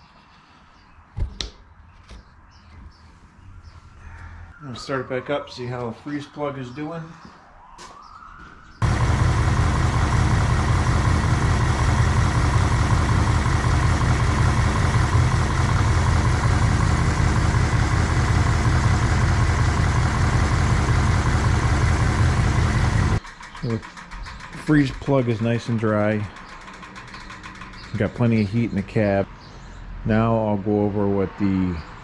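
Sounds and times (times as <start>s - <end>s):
engine running steadily: 8.8s - 28.9s.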